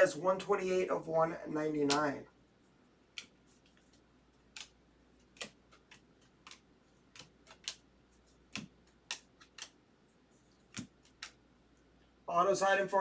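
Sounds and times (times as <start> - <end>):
cards clicking against stack: 3.1 - 9.8, 10.5 - 11.4.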